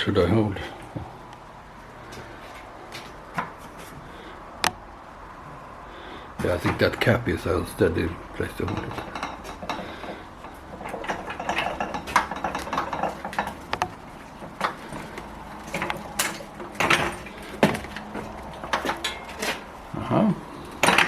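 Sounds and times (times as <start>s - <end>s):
metal rattling and clinking: 6.3s - 21.0s.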